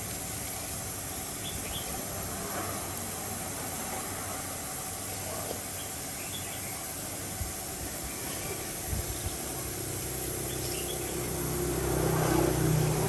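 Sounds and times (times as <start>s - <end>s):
steady background hiss: 0.0s - 13.0s
engine humming: 6.9s - 13.0s.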